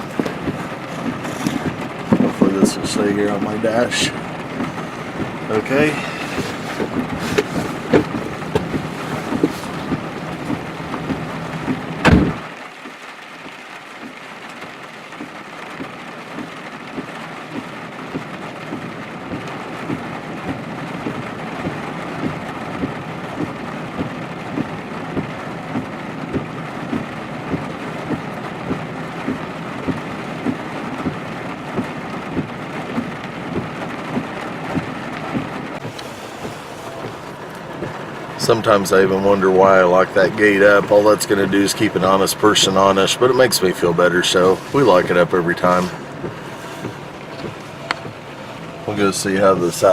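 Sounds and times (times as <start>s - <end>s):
rain on truck roof: 0.0s - 49.9s
truck door slamming: 5.2s - 12.5s.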